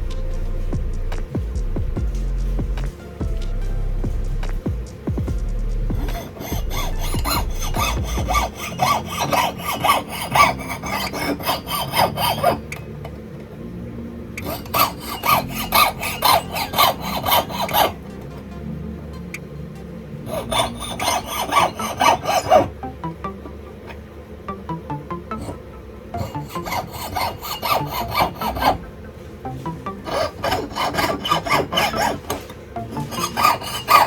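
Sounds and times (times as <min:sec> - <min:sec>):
hand file rasping on metal: 0:05.9 - 0:12.7, 0:14.4 - 0:18.0, 0:20.3 - 0:22.7, 0:26.2 - 0:28.9, 0:30.0 - 0:34.0.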